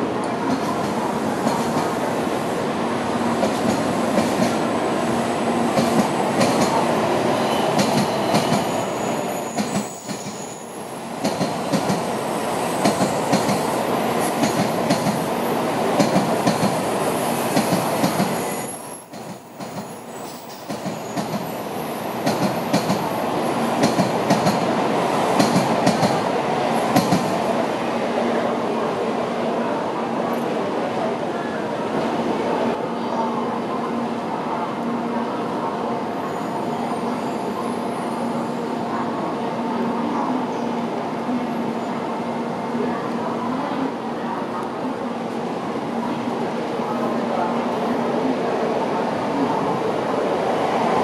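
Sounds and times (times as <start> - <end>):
train wheels rumbling on rails: 0.0 - 27.6.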